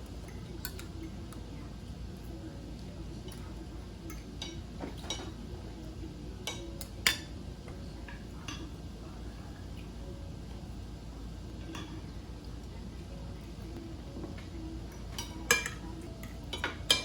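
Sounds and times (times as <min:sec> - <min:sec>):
low background hum: 0:00.0 - 0:17.0
cutlery clinking against dishes: 0:00.1 - 0:01.6, 0:03.2 - 0:05.8, 0:06.4 - 0:08.8, 0:11.6 - 0:12.2, 0:14.3 - 0:17.0.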